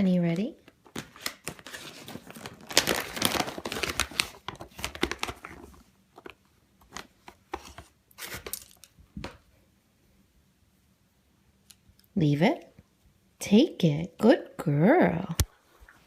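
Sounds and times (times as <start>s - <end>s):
packaging crinkling and rustling: 0.6s - 8.9s.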